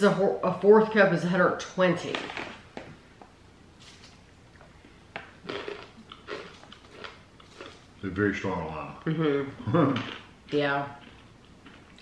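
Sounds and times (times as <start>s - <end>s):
crunchy beans being chewed: 5.3s - 7.9s, 9.9s - 12.0s.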